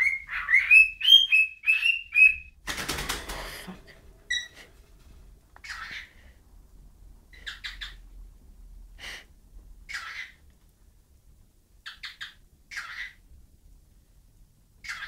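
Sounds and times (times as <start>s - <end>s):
bird chirping: 0.0s - 2.6s, 4.2s - 4.6s, 5.6s - 6.2s, 7.3s - 8.0s, 9.9s - 10.4s, 11.8s - 13.2s, 14.8s - 15.0s.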